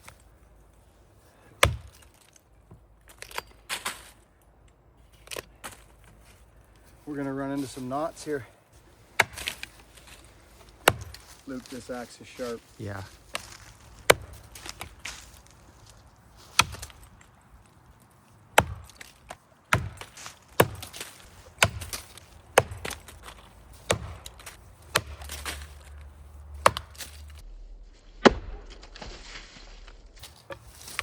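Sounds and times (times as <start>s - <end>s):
axe chopping into tree trunk: 1.6s - 4.0s, 9.2s - 11.8s, 13.3s - 15.3s, 16.4s - 17.2s, 18.5s - 27.4s, 28.2s - 29.4s.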